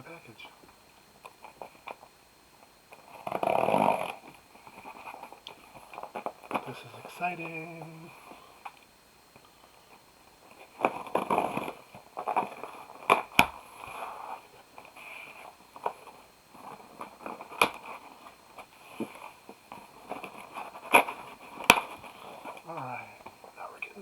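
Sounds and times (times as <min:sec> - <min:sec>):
cardboard crinkling: 0:03.0 - 0:08.8, 0:09.9 - 0:23.6
cardboard snapping: 0:10.7 - 0:13.6, 0:14.8 - 0:22.6.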